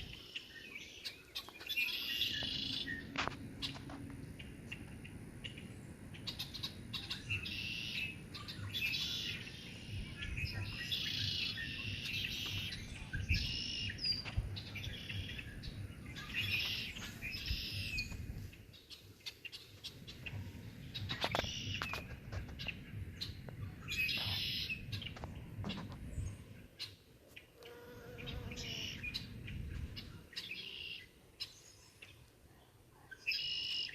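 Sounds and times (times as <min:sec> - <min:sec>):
songbirds chirping: 0:00.0 - 0:33.9.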